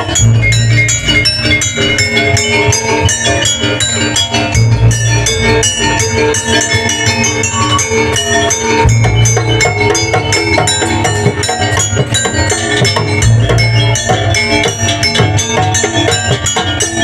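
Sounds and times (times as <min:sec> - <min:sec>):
gamelan-style ensemble playing: 0:00.0 - 0:17.0
strong low bass: 0:04.5 - 0:06.3.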